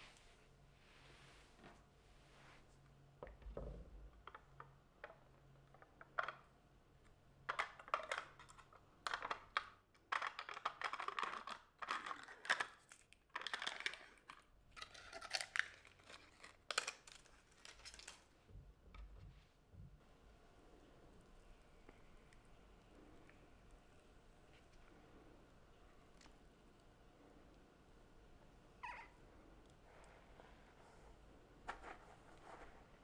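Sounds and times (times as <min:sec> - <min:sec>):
paper rustling and crinkling: 0:11.9 - 0:18.4.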